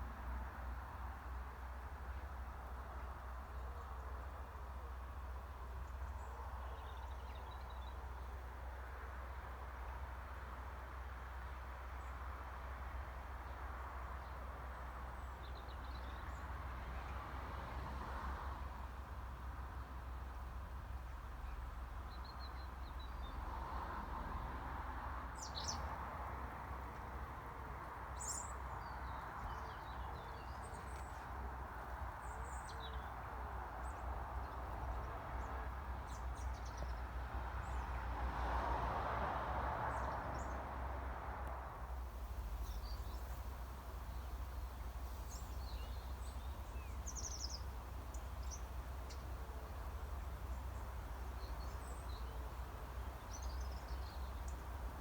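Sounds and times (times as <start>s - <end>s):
outdoor background noise: 0.0s - 55.0s
small birds chirping: 25.4s - 25.9s, 28.2s - 33.2s, 42.2s - 55.0s.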